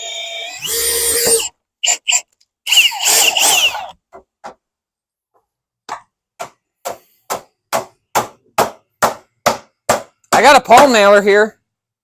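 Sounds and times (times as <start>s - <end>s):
power drill whining: 0.0s - 4.0s
hammer striking wood: 5.8s - 11.0s.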